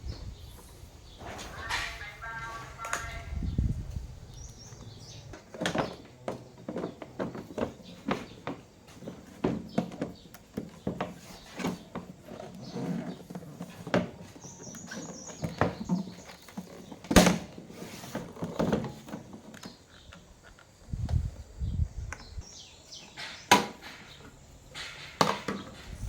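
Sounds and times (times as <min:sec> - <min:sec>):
hard objects clicking and knocking: 0:23.0 - 0:26.0.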